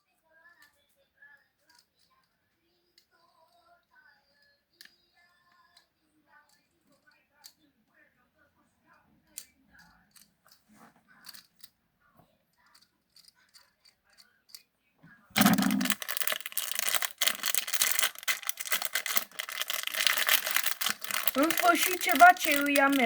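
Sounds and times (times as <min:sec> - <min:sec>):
packaging crinkling and tearing: 0:15.4 - 0:23.0.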